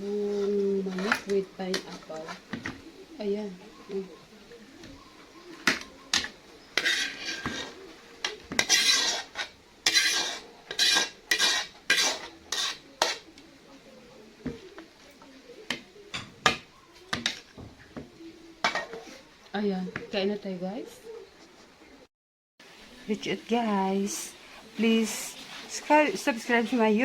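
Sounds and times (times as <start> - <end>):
metal spoon scraping a pan: 0.0 - 2.8, 5.0 - 13.4, 18.6 - 19.3, 24.2 - 27.0.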